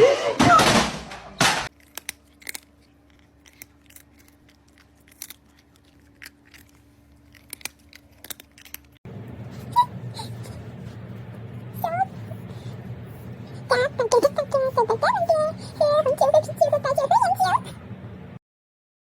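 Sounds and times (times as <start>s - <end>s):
crisp crunching clicks: 1.7s - 9.0s
faint steady hum: 1.7s - 18.4s
noisy background: 9.1s - 18.4s.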